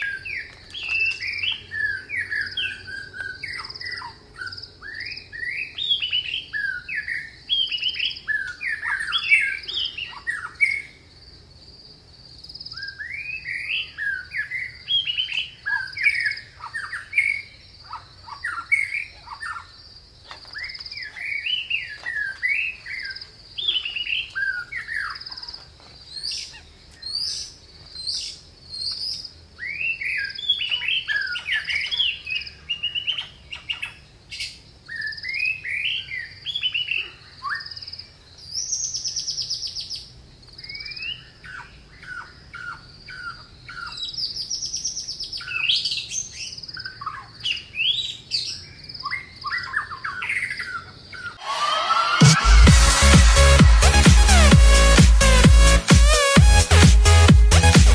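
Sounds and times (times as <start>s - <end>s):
bird chirps: 0.0s - 11.1s, 12.5s - 56.8s
harsh rasping bird call: 51.2s - 57.9s
steady high buzz: 51.4s - 57.9s.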